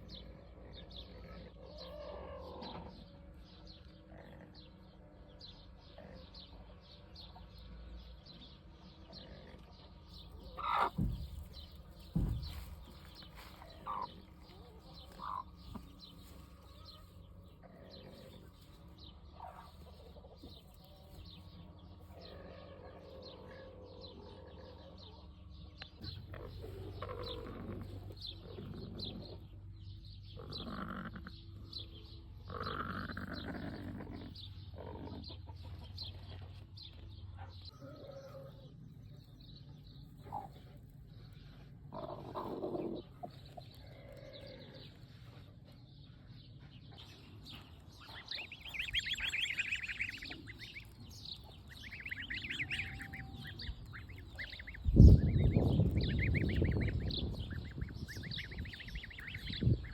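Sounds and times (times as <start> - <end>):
chickens clucking: 9.3 - 25.2, 25.8 - 29.6, 32.5 - 38.7, 40.1 - 40.9, 41.5 - 45.7, 46.8 - 59.9
small high chirps: 48.1 - 59.7.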